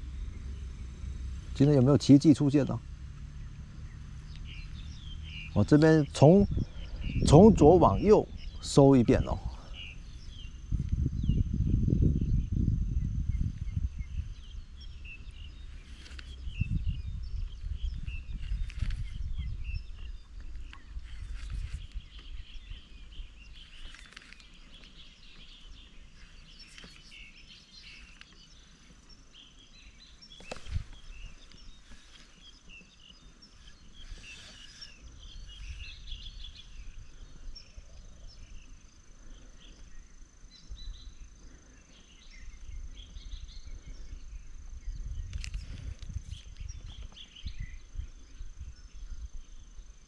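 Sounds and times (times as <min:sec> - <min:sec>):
thin high whine: 0:00.0 - 0:20.0
wind rumble on microphone: 0:00.0 - 0:28.7, 0:29.7 - 0:50.0
small birds chirping: 0:00.0 - 0:50.0.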